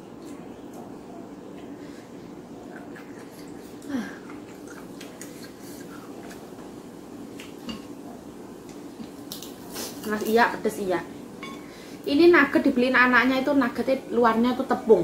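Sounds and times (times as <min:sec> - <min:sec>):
low background hum: 0:00.0 - 0:15.0
person chewing: 0:02.6 - 0:06.6.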